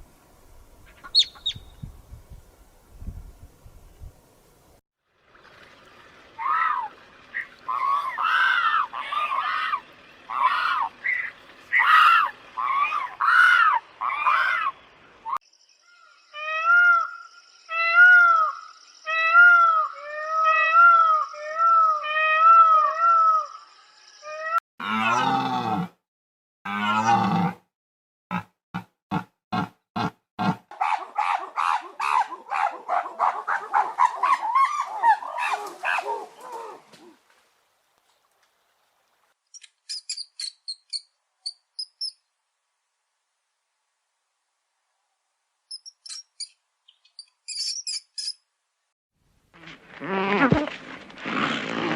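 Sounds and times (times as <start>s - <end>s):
small animal chirping: 1.0s - 1.7s, 39.6s - 42.2s, 45.7s - 48.4s.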